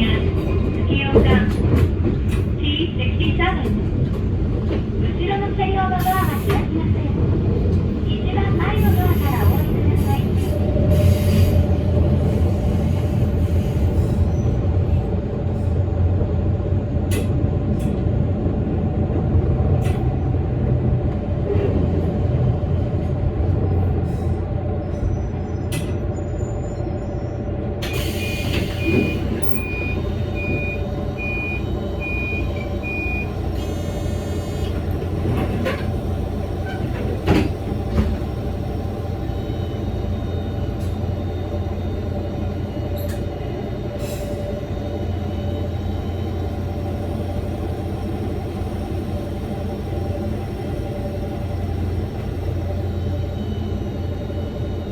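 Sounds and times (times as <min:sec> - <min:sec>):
electric train hum: 0:00.0 - 0:54.9
short beeps: 0:28.8 - 0:33.4.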